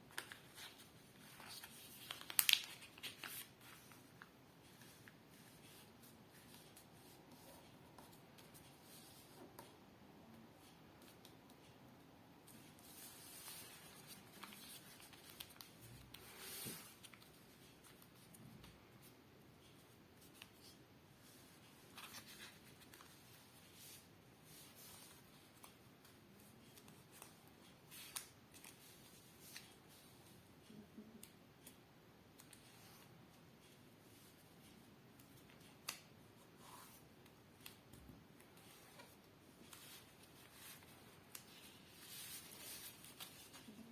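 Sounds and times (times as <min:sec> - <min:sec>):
paper rustling and creasing: 0:00.1 - 0:09.4, 0:12.5 - 0:18.7, 0:19.8 - 0:25.8, 0:38.6 - 0:43.9.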